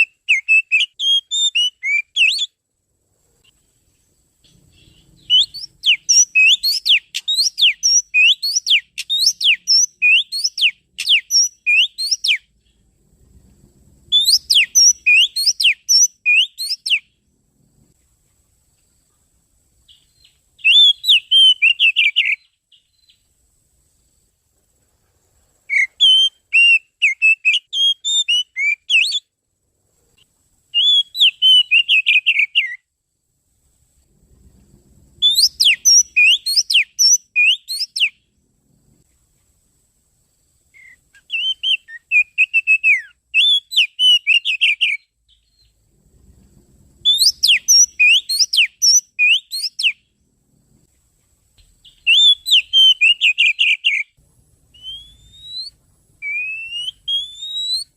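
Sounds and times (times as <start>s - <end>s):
bird whistles and chirps: 0.0s - 2.6s, 4.5s - 12.8s, 14.1s - 17.1s, 19.9s - 23.2s, 25.7s - 29.3s, 30.8s - 32.8s, 35.2s - 38.2s, 40.8s - 45.8s, 47.0s - 50.0s, 51.8s - 57.9s.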